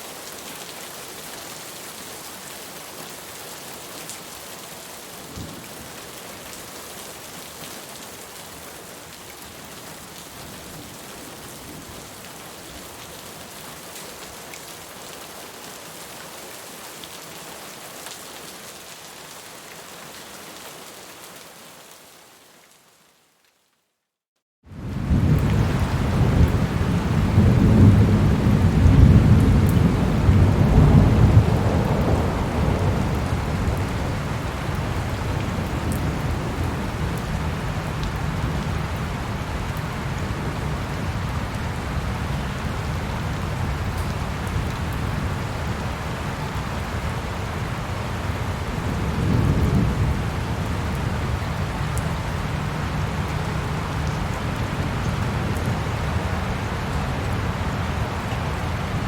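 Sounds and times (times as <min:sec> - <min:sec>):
steady rain: 0:00.0 - 0:23.9, 0:24.6 - 0:59.0
thunder rumbling: 0:24.7 - 0:46.3, 0:46.9 - 0:56.2.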